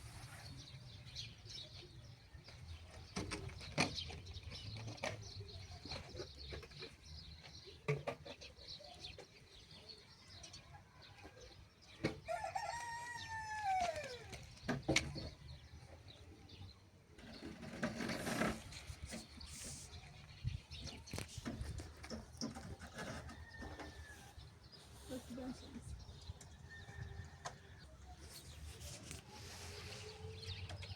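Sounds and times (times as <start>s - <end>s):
rooster crowing: 12.3s - 14.3s.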